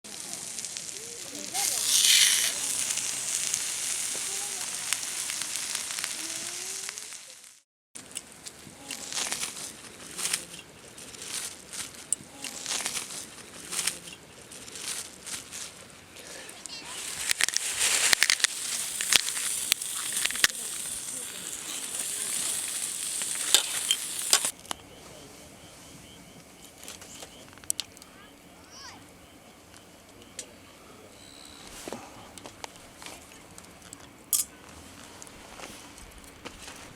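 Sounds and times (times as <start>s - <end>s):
food sizzling in a pan: 0.1s - 7.6s, 16.9s - 24.5s.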